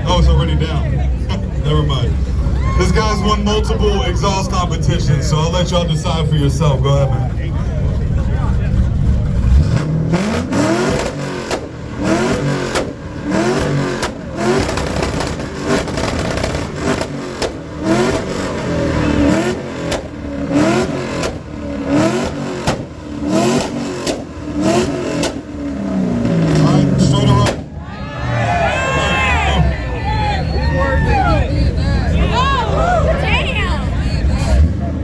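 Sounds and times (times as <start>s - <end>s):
exhaust cracks: 0.0s - 27.9s
car engine revving loud exhaust: 0.0s - 35.0s.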